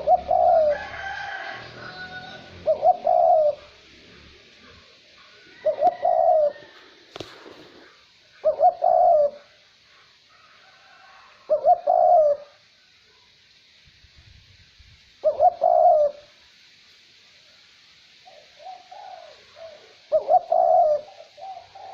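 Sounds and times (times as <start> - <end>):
dove cooing: 0.0 - 10.0, 10.8 - 12.6, 15.2 - 16.4, 18.2 - 21.9
light wind hiss: 0.0 - 21.9.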